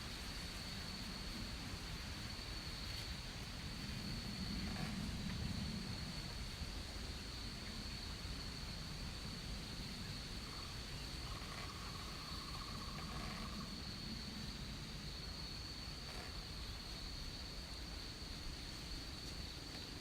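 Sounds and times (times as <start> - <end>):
low background rumble: 0.0 - 20.0
high-pitched insect drone: 10.1 - 17.4.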